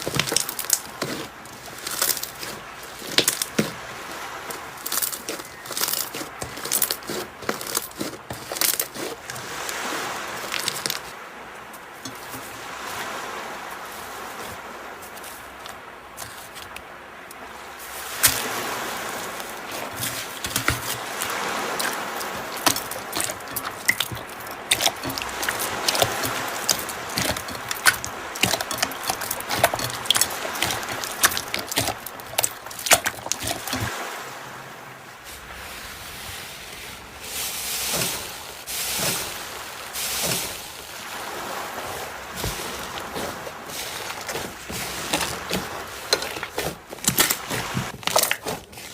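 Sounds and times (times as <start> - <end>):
wet slime squishes: 0.0 - 3.8, 4.5 - 9.4, 19.7 - 33.9, 42.3 - 48.9.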